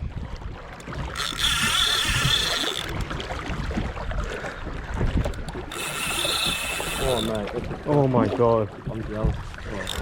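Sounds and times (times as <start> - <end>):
wind and water rumble: 0.0 - 10.0
fishing reel drag screaming: 1.0 - 3.0, 5.7 - 7.4.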